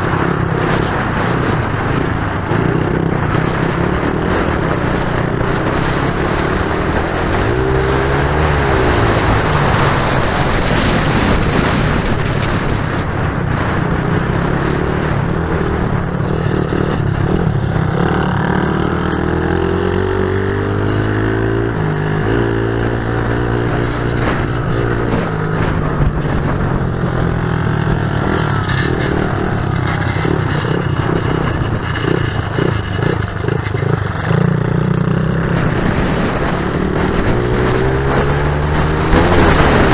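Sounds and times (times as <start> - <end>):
pit bike engines revving: 0.0 - 39.9.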